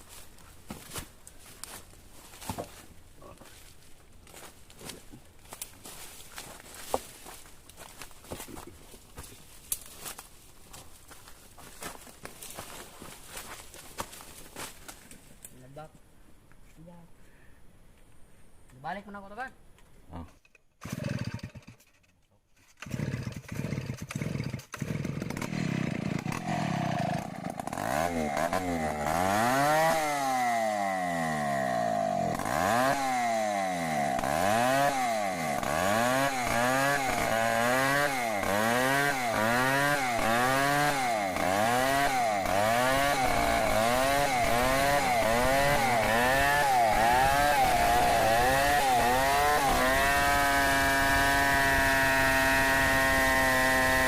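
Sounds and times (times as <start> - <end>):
chainsaw revving: 20.8 - 21.9, 22.8 - 54.0.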